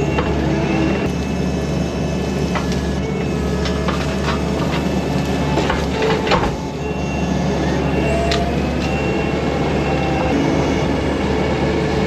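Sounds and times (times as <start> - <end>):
heavy machine engine running: 0.0 - 12.0
machine clanks and knocks: 3.6 - 6.7.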